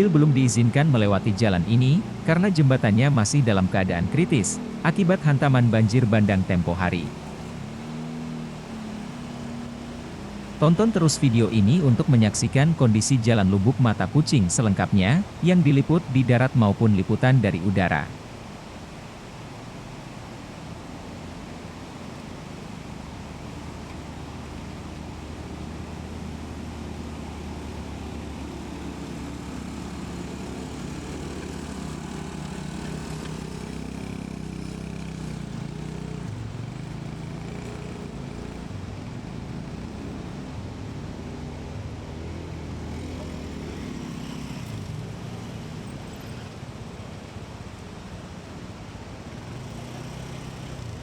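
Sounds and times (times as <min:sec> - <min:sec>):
engine running: 0:00.0 - 0:12.4, 0:20.0 - 0:51.0.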